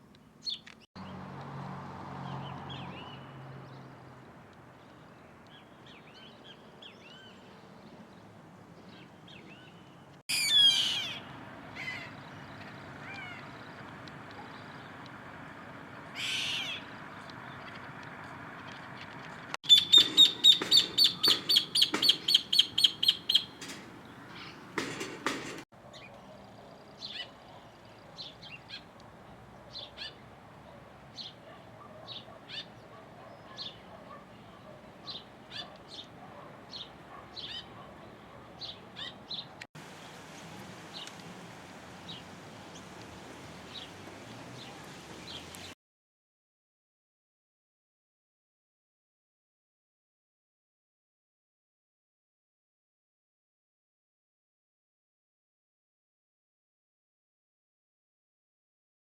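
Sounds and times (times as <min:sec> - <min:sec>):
rapid high bird calls: 0:10.3 - 0:18.0, 0:19.6 - 0:25.6
short high bird chirps: 0:19.7 - 0:23.7.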